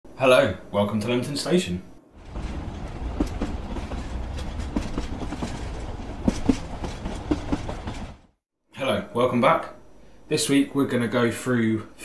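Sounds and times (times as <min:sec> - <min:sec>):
train rumbling on rails: 0:02.1 - 0:08.4
sharp wheel clacks: 0:02.2 - 0:08.2.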